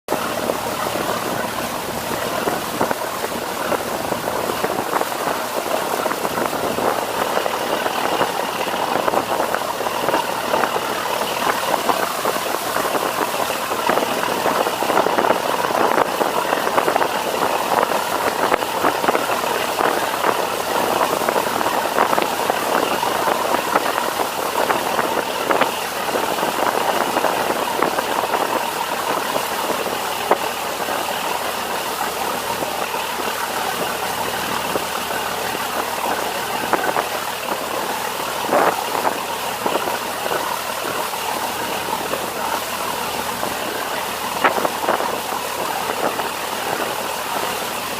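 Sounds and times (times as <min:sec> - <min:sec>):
boat engine running: 0:00.0 - 0:47.9
water splashing along hull: 0:00.0 - 0:47.9.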